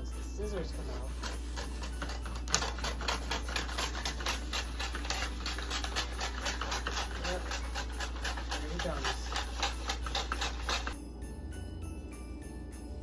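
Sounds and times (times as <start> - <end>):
scissors snipping paper: 1.0 - 11.0.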